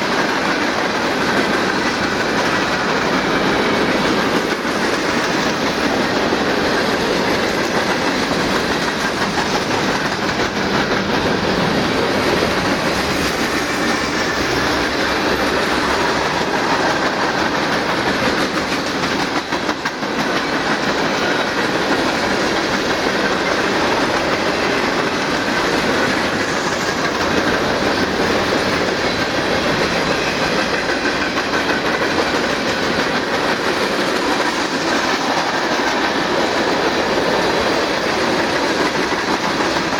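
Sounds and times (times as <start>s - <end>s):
freight train wheels clattering: 0.0s - 39.9s.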